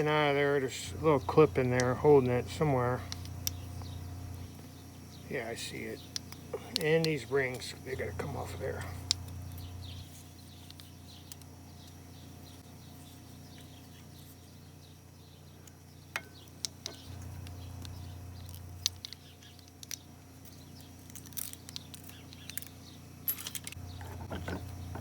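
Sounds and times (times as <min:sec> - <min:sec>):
birds chirping faintly: 0:00.0 - 0:25.0
low steady hum: 0:00.0 - 0:25.0
small metal parts clicking: 0:15.6 - 0:24.6.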